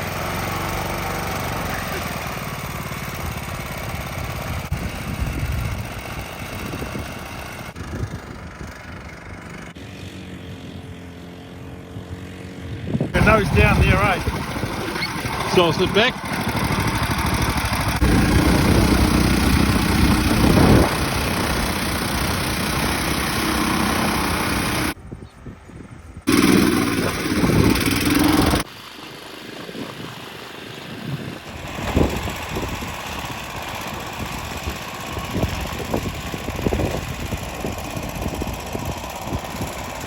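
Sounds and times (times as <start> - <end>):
boat motor running hard: 13.2 - 25.0, 26.3 - 28.7.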